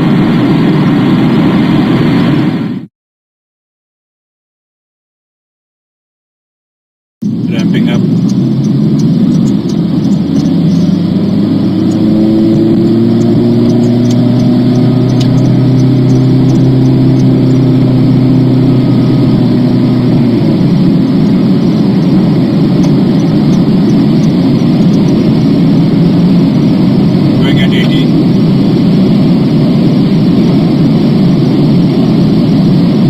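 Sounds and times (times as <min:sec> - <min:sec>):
car engine accelerating: 0:07.2 - 0:33.0
road and tyre noise: 0:07.2 - 0:33.0.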